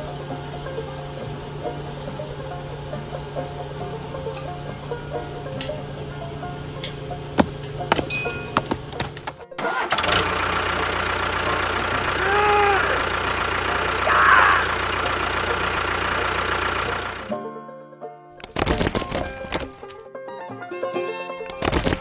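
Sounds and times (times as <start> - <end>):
small motor running: 10.0 - 17.3.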